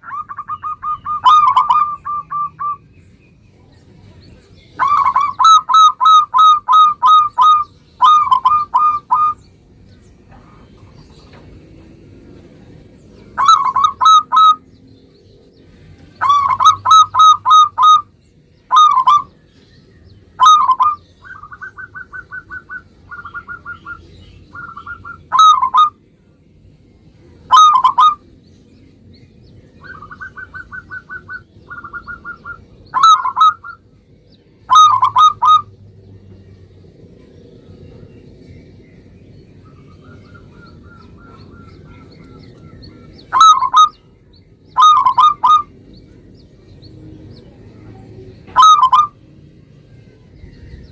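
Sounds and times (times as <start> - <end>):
dove cooing: 0.0 - 2.8, 4.8 - 9.4, 13.4 - 14.6, 16.2 - 18.1, 18.7 - 19.4, 20.4 - 26.0, 27.5 - 28.2, 29.8 - 33.8, 34.7 - 35.7, 39.7 - 44.0, 44.8 - 45.8, 48.5 - 49.2.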